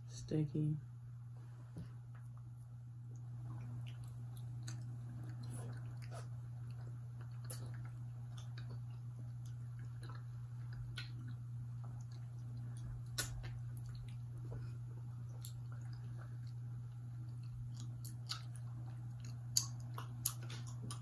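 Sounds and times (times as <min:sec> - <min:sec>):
mouth chewing smacks: 0:03.1 - 0:21.0.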